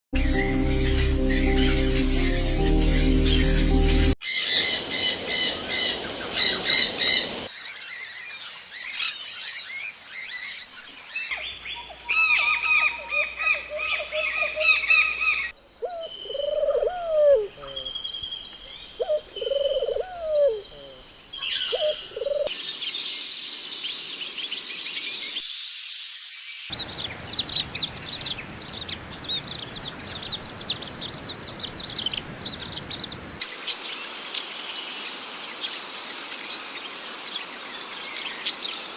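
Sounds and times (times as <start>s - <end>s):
low arching bird calls: 0.2s - 22.5s, 26.7s - 33.8s
birds chirping and trilling: 0.2s - 38.9s.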